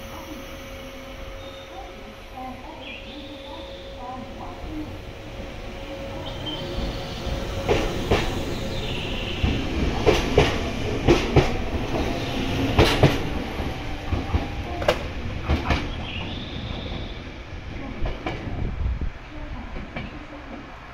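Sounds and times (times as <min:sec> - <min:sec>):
electric train rumble: 0:00.0 - 0:20.9
train wheels clicking over rail joints: 0:07.5 - 0:17.1.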